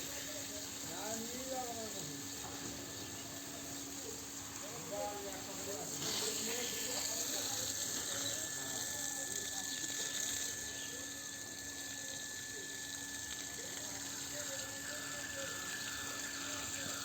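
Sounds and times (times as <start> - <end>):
faint distant voices: 0.0 - 17.0
steady hissing noise: 0.0 - 17.0.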